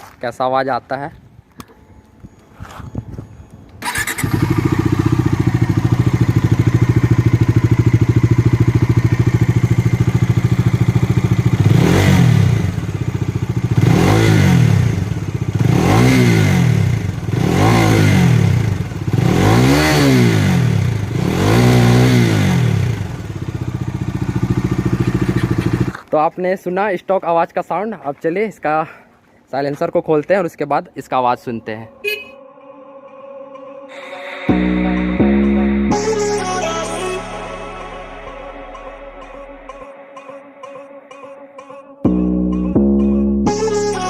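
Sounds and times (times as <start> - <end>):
motorcycle engine idling and revving: 2.7 - 26.1.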